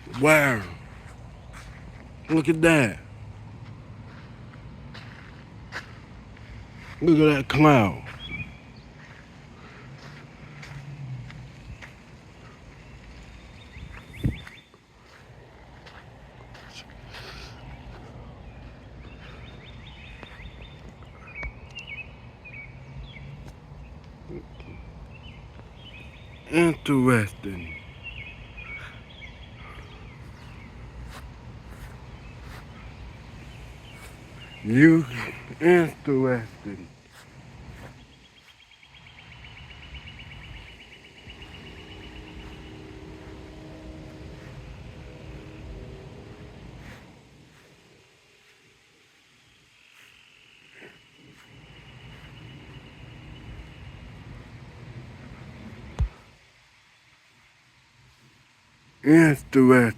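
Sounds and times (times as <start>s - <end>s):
vehicle passing by: 0.0s - 14.3s, 39.2s - 47.7s
small birds chirping: 0.0s - 59.9s
wind rumble on microphone: 8.1s - 9.2s, 11.0s - 14.6s.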